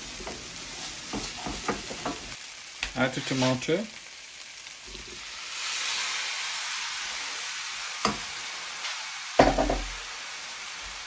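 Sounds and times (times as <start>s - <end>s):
food sizzling in saucepan: 0.0s - 11.0s.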